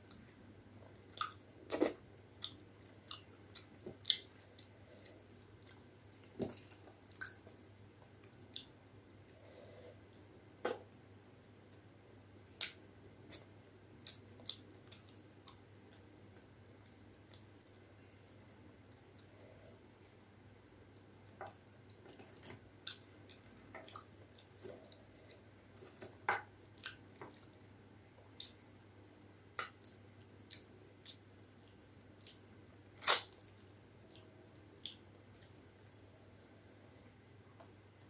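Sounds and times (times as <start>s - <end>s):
faint steady hum: 0.0s - 38.0s
wet chewing and mouth sounds: 1.0s - 9.5s, 12.5s - 17.6s, 21.4s - 26.1s, 26.8s - 27.6s, 29.6s - 38.0s.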